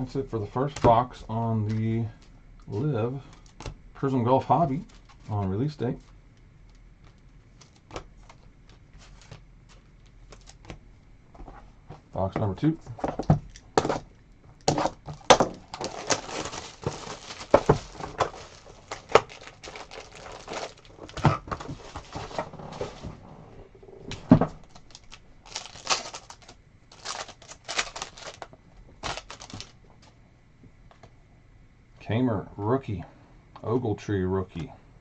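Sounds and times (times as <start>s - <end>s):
plastic wrapping crinkling and tearing: 4.6s - 5.4s, 14.6s - 23.1s, 24.6s - 29.8s.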